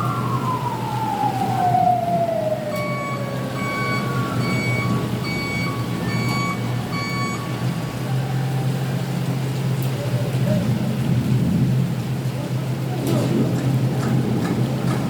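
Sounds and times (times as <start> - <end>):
siren falling tone: 0.0 - 7.7
low engine hum: 0.0 - 15.0
rain: 0.0 - 15.0
reversing alarm beeping: 2.7 - 7.7.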